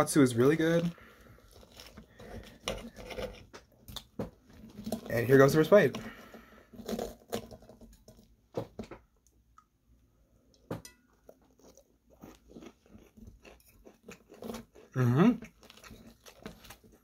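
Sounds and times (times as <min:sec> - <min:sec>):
crunching fried chicken: 0:00.2 - 0:08.0, 0:11.2 - 0:17.0.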